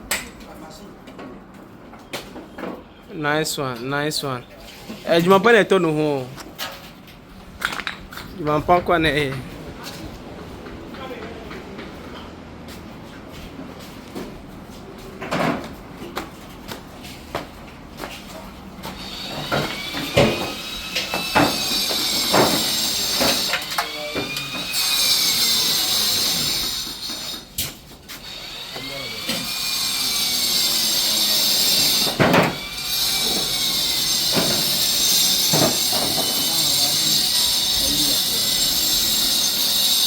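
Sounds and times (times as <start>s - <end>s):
power tool hissing and whining: 28.2s - 40.0s.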